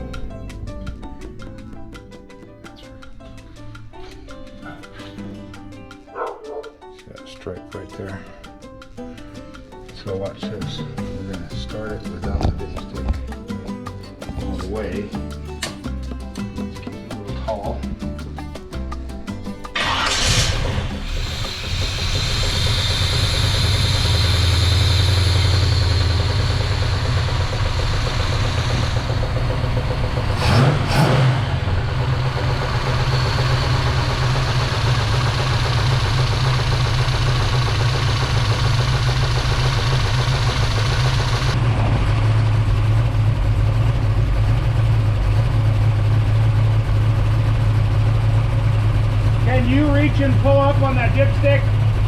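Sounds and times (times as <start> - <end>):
car engine running: 0.0 - 2.9, 17.4 - 52.0
car engine revving: 19.7 - 52.0.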